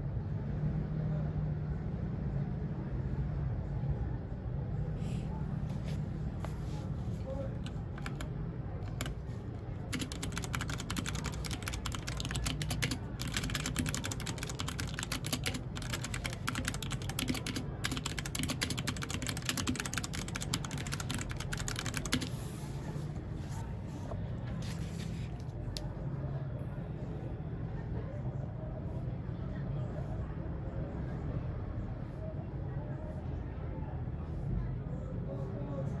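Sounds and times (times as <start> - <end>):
mechanical keyboard typing: 7.3 - 22.7.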